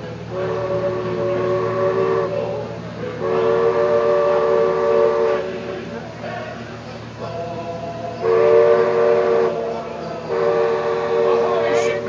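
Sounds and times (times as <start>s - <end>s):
ship's chime whistle blasts: 0.3s - 2.6s, 3.2s - 5.5s, 8.2s - 9.6s, 10.2s - 12.0s.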